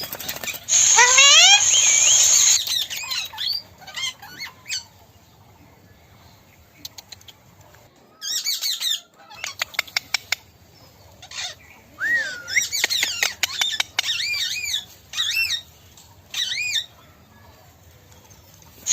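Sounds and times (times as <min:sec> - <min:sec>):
rising-and-falling whistle: 0:00.7 - 0:02.6
parrots screeching: 0:00.7 - 0:04.8, 0:11.2 - 0:15.6.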